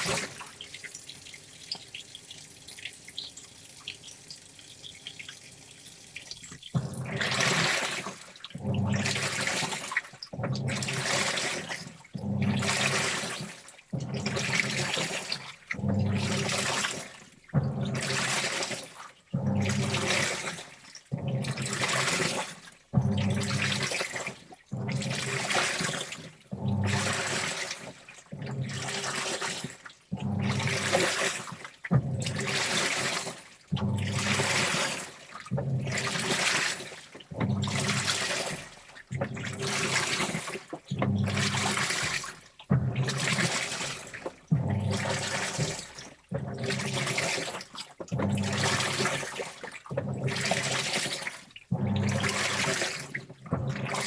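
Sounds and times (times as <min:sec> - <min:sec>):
washing machine water sloshing: 0:00.0 - 0:54.0
light dripping: 0:00.5 - 0:06.7.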